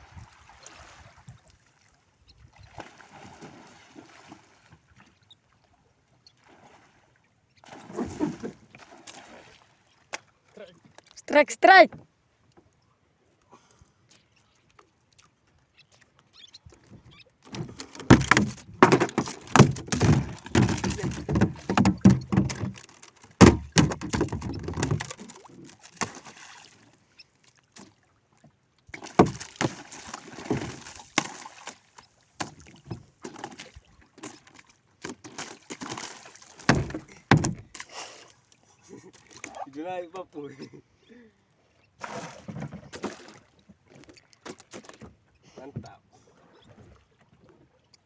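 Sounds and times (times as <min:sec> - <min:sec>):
fish thudding against boat deck: 0:17.5 - 0:25.3, 0:29.2 - 0:29.8, 0:36.6 - 0:37.8.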